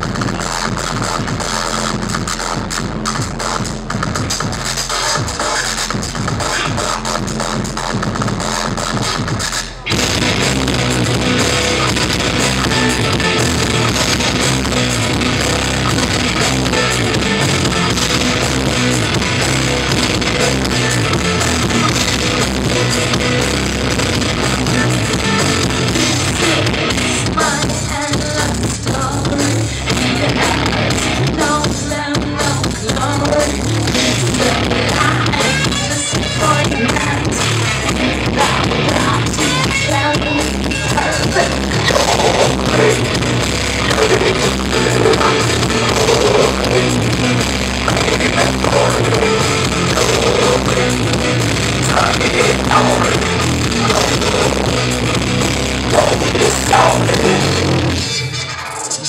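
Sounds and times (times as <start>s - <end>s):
drum kit: 0.0s - 58.2s
distorted guitars: 0.0s - 59.0s
person singing: 24.5s - 47.1s, 47.8s - 51.1s, 51.8s - 54.9s, 55.8s - 58.4s.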